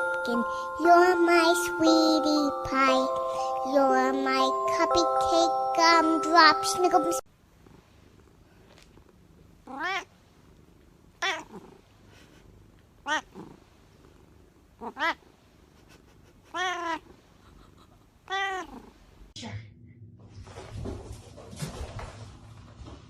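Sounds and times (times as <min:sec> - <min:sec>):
cat meowing: 0:09.7 - 0:10.1, 0:11.2 - 0:11.6, 0:13.0 - 0:13.3, 0:14.8 - 0:15.2, 0:16.5 - 0:17.0, 0:18.3 - 0:18.8.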